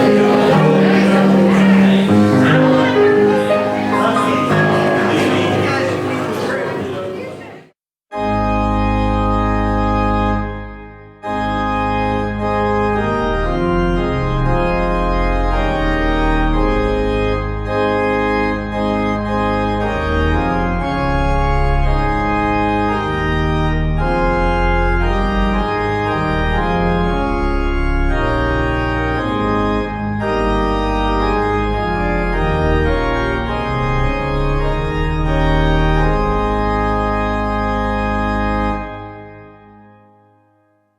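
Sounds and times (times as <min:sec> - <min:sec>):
organ playing held chords: 0:00.0 - 0:40.5.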